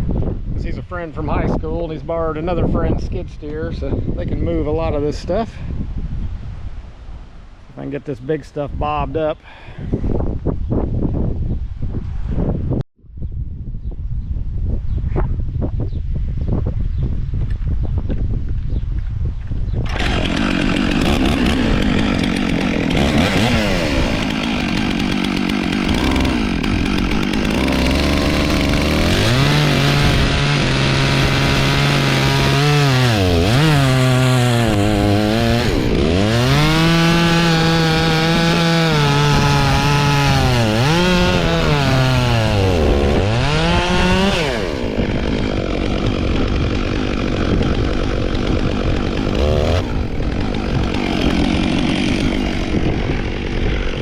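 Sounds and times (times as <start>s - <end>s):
chainsaw cutting wood: 19.8s - 54.0s.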